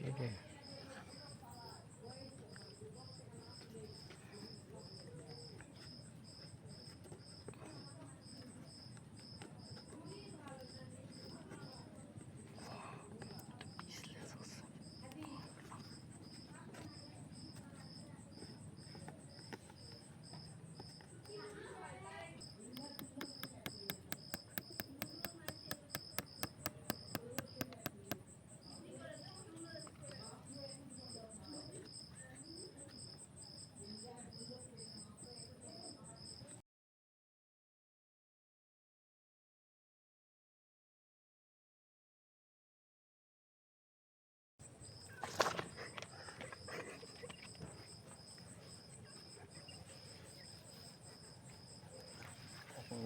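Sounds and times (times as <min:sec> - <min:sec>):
insects chirping: 0:00.0 - 0:36.5, 0:44.6 - 0:53.0
rapid sharp knocking: 0:22.8 - 0:28.2.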